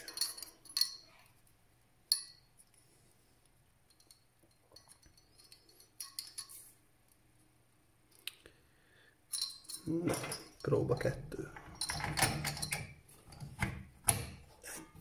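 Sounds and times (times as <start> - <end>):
computer hardware clicking and clinking: 9.4 - 14.4.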